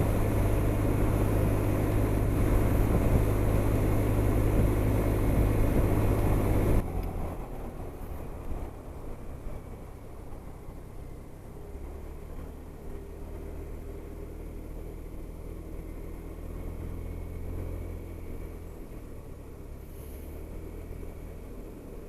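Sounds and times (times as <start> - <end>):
wind noise: 0.0 - 8.8
scooter engine running: 0.0 - 10.6
road noise: 0.0 - 22.0.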